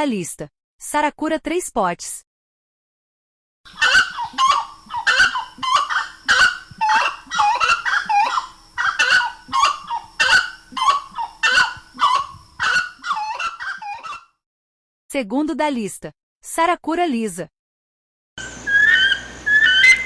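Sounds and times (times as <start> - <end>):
wood rail honking calls: 18.4 - 20.0.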